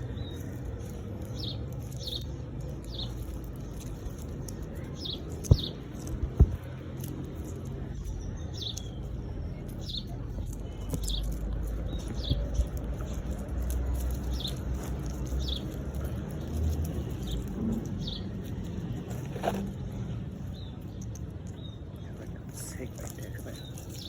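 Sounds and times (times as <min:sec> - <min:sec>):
young animal peeping: 0:00.0 - 0:24.0
sharp knocks: 0:05.4 - 0:06.8.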